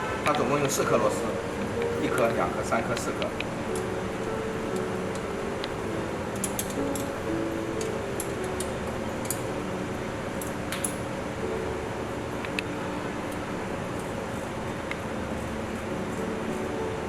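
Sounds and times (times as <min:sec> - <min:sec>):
steady machine hum: 0:00.0 - 0:17.0
small metallic clicks: 0:06.3 - 0:07.2.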